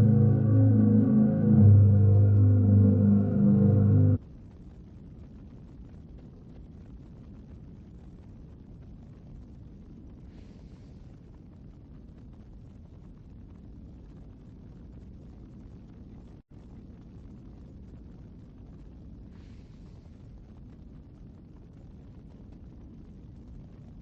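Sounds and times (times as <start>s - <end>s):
faint rumble: 0.0s - 4.5s.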